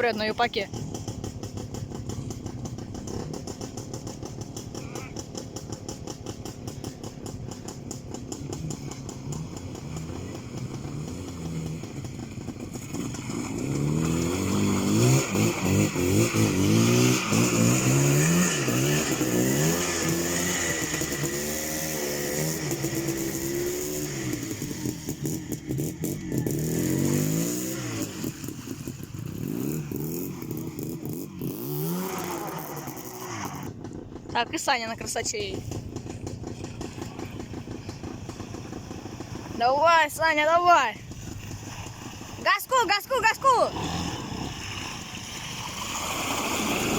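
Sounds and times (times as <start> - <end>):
motorcycle engine revving hard: 0.6 - 34.3, 43.2 - 46.9.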